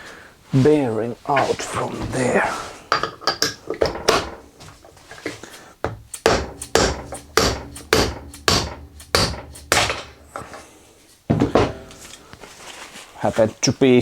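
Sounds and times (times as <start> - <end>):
hammer striking metal socket: 6.0 - 10.7, 11.5 - 12.2.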